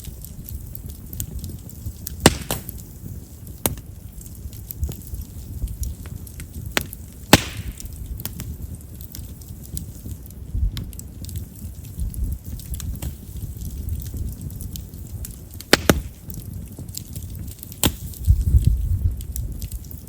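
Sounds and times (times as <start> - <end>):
firewood crackling and popping: 0.0 - 20.0
low steady sound of flames: 0.0 - 20.0
loud wood snaps: 2.0 - 2.9, 6.7 - 8.4, 15.6 - 18.3.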